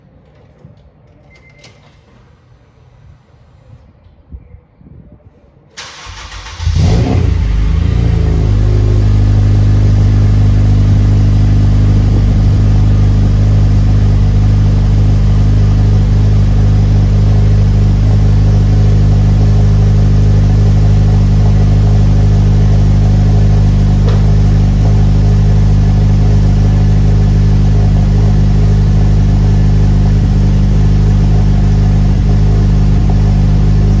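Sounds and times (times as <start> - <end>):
engine starter cranking: 5.8 - 7.7
car engine revving and idling: 5.9 - 34.0.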